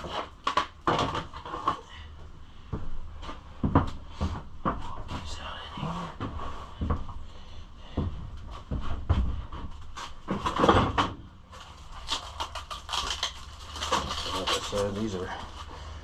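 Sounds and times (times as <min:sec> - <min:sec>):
plastic scraping: 0:11.5 - 0:15.8.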